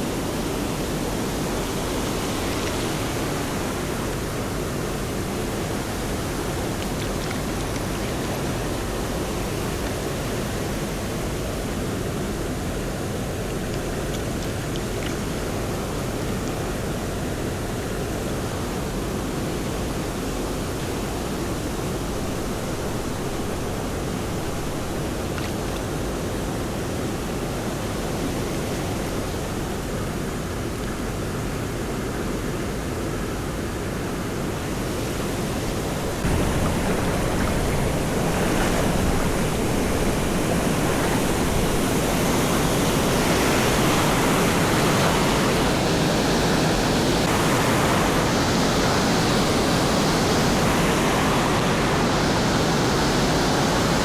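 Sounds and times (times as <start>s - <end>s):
waterfall rushing: 34.4s - 54.0s.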